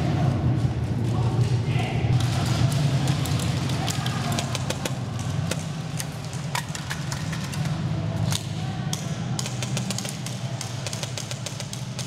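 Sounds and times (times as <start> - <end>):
steady low hum: 0.0 - 12.0
airsoft guns firing: 9.3 - 12.0.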